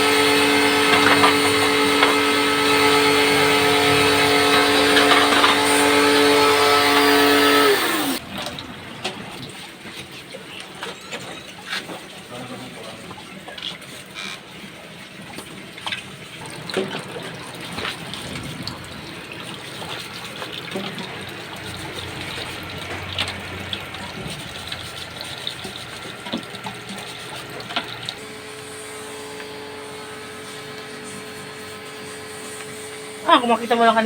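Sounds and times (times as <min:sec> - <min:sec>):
electric motor hum: 0:00.0 - 0:08.2
water splashing in washing machine: 0:00.0 - 0:34.0.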